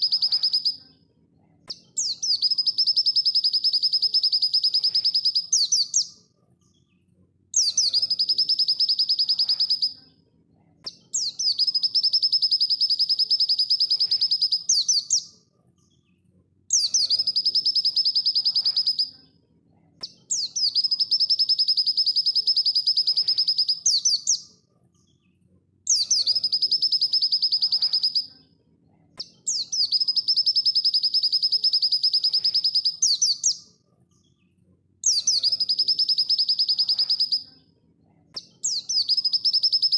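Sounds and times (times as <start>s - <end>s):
bird high-pitched trill: 0.0s - 0.8s, 2.0s - 6.1s, 7.6s - 10.0s, 11.2s - 15.3s, 16.8s - 19.1s, 20.4s - 24.4s, 25.9s - 28.3s, 29.5s - 33.6s, 35.1s - 37.5s, 38.6s - 39.9s.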